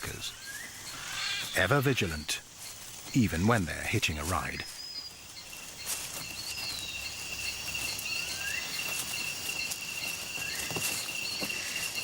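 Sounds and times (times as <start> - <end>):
high insect drone: 0.0 - 12.0
bird whistles: 0.2 - 2.0, 6.3 - 9.3.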